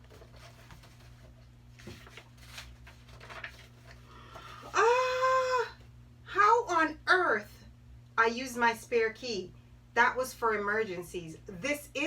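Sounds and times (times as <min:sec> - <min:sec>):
paper pages rustling: 0:00.0 - 0:04.7.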